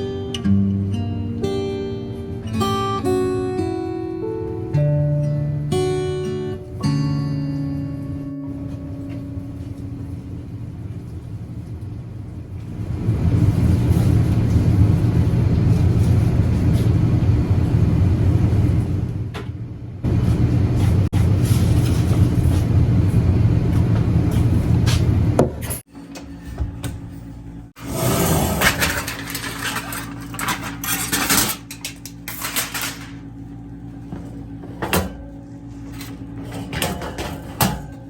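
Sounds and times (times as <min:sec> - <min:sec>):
machine rumble: 0:08.0 - 0:38.0.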